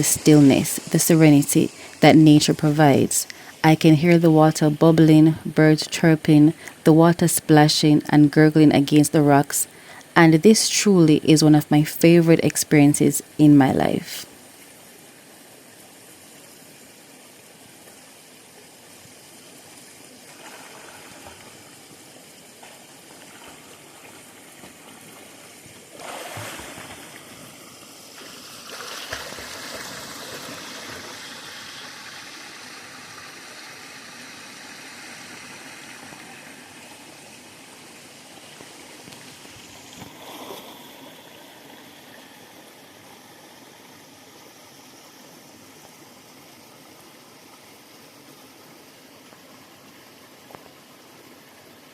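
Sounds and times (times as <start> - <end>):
water splashing: 22.6 - 31.8.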